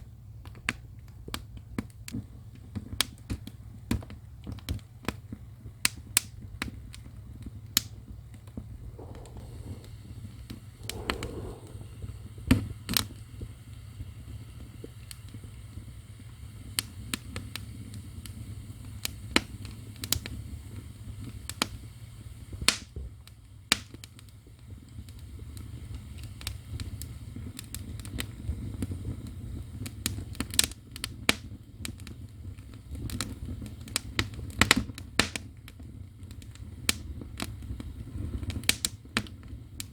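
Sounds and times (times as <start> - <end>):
low rumble of fire: 6.2 - 20.7
fire crackling and popping: 8.6 - 12.6.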